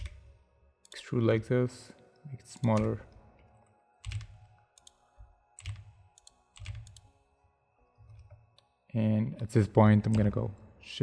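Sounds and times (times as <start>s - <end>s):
computer keyboard keystrokes: 0.0s - 0.3s, 2.6s - 3.0s, 4.0s - 5.0s, 5.6s - 7.1s.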